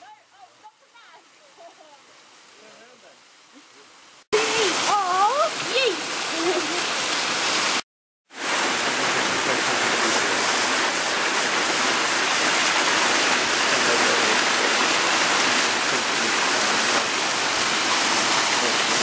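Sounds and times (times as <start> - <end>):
waterfall splashing into pool: 4.3 - 19.0.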